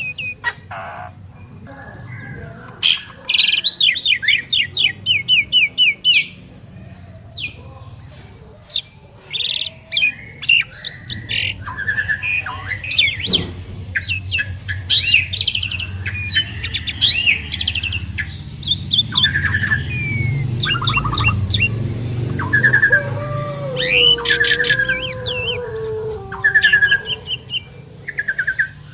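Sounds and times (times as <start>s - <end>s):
starlings singing: 0.0s - 28.9s
faint low hum: 6.4s - 28.7s.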